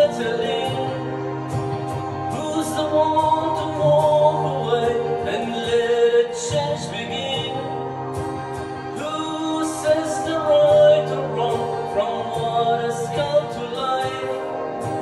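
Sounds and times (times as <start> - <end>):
voices singing in harmony: 0.0 - 15.0.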